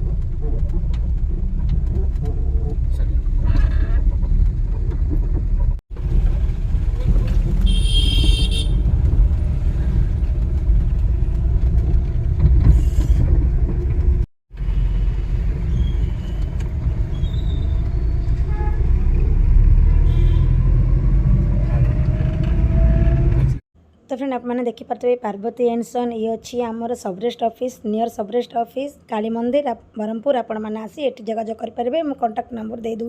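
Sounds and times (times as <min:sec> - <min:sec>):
car engine and road noise: 0:00.0 - 0:23.6
short high-pitched car horn toot: 0:07.7 - 0:08.8, 0:20.0 - 0:20.5.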